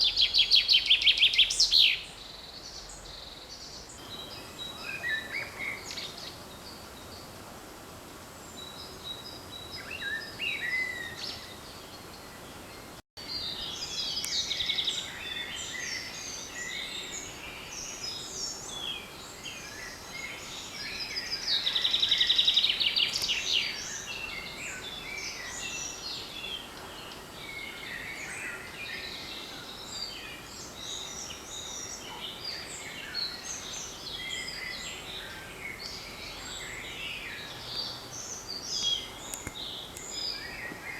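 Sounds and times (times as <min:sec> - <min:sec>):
songbirds singing: 0:00.0 - 0:07.4, 0:08.4 - 0:40.9.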